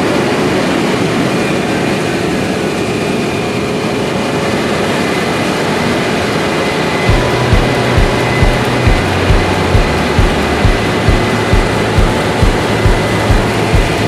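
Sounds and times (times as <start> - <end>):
dense rush of machinery noise: 0.0 - 14.0
faint high whine: 0.0 - 14.0
diesel engine running: 7.0 - 14.0
music with thumping bass: 7.1 - 14.0.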